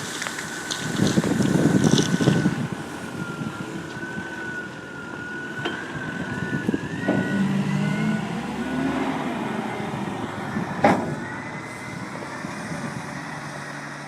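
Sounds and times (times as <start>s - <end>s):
wind buffeting microphone: 0.0s - 8.4s, 9.1s - 13.4s
wheel loader mechanical whine: 0.0s - 14.0s
reversing alarm beeping: 1.9s - 13.0s.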